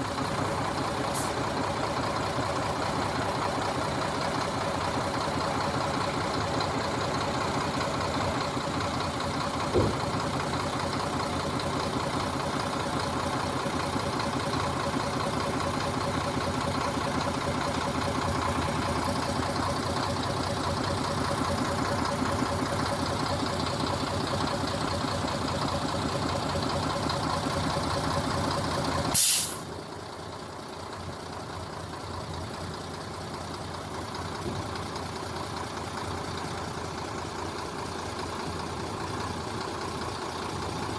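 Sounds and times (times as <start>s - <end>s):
truck diesel engine running: 0.0s - 40.9s
short knock: 9.7s - 10.1s.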